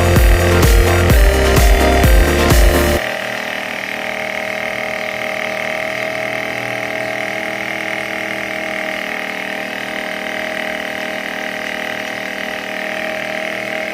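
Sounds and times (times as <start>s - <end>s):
small electric motor whining: 0.0s - 13.9s.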